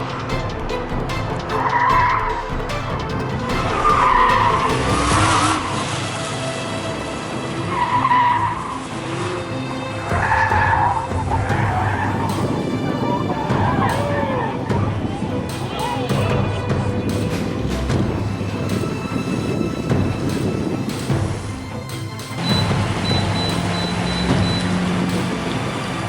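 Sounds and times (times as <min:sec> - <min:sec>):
music: 0:00.0 - 0:26.0
car engine running hard: 0:03.5 - 0:14.0, 0:22.4 - 0:26.0.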